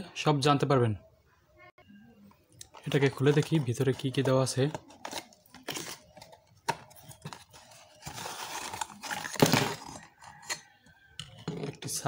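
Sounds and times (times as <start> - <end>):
packaging rustling and tearing: 2.7 - 10.1.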